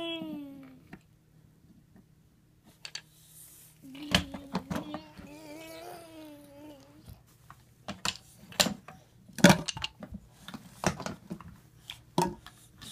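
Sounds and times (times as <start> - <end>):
drawn-out vocal sound: 3.8 - 7.2.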